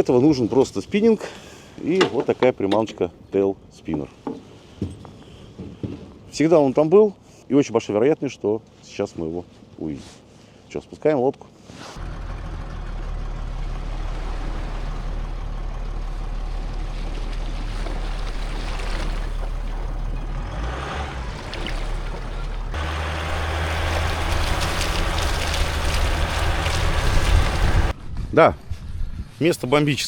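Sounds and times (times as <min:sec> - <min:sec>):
engine drone: 0:12.0 - 0:28.0.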